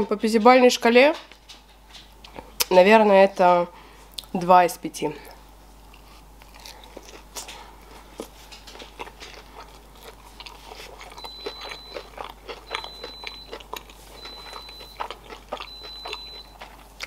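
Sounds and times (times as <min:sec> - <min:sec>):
person chewing food: 0:05.3 - 0:17.0.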